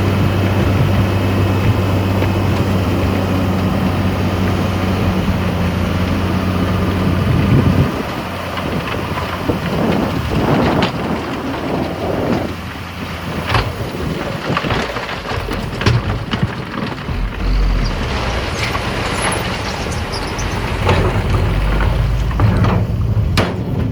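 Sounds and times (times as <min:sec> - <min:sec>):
diesel truck engine running: 0:00.0 - 0:23.9
sand sliding from dump truck: 0:04.8 - 0:23.3.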